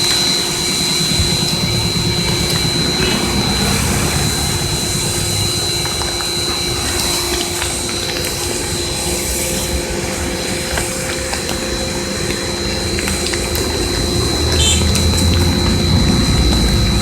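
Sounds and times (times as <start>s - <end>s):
motorcycle engine running: 0.2s - 8.0s, 13.5s - 17.0s.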